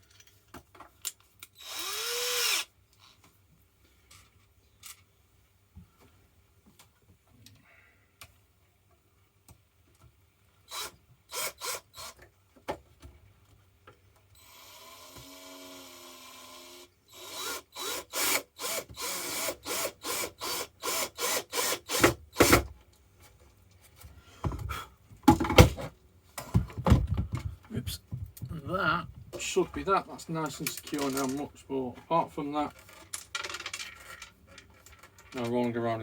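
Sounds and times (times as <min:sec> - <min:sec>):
small power drill running: 0:01.6 - 0:02.7, 0:14.4 - 0:22.5.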